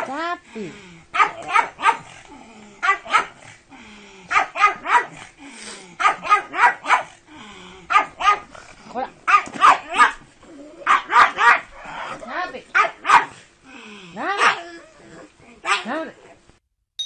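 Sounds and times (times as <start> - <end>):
dog barking excitedly: 1.1 - 2.2, 2.8 - 3.5, 4.3 - 5.3, 6.0 - 7.2, 7.9 - 8.5, 9.2 - 13.4, 14.2 - 14.7, 15.6 - 16.2.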